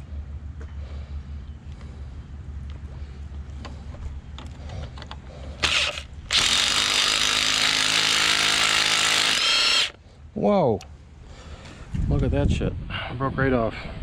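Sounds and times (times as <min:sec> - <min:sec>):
power drill driving screw: 0:05.6 - 0:10.0.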